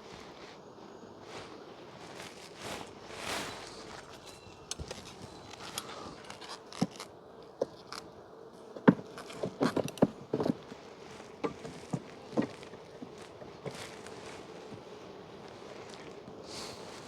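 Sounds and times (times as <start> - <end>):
hive tool knocking on wooden frames: 8.7 - 14.9.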